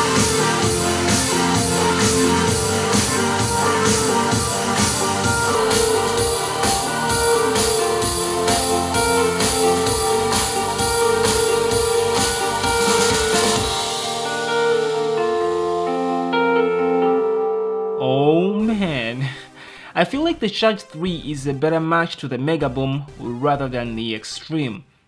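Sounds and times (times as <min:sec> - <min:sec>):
song with drums and guitar: 0:00.0 - 0:17.1.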